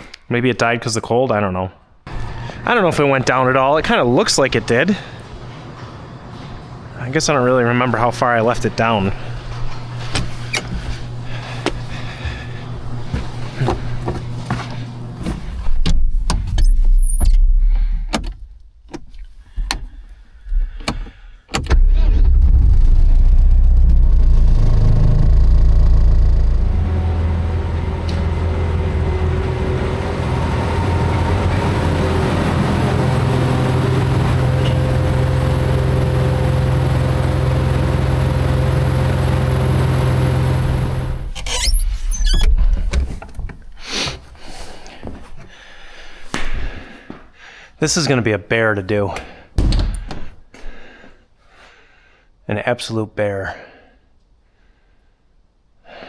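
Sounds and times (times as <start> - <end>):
diesel engine running: 2.1 - 43.0.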